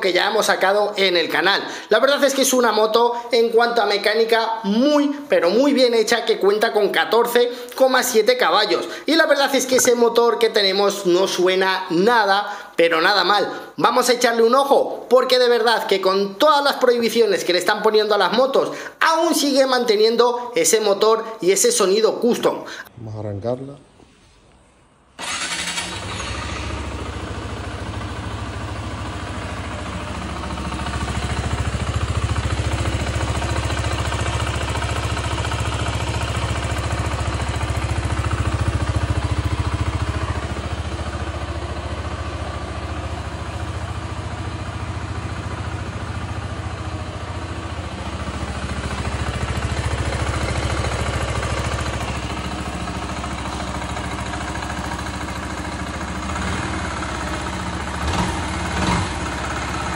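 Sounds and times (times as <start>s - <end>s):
motorcycle engine starting and idling: 25.2s - 59.9s.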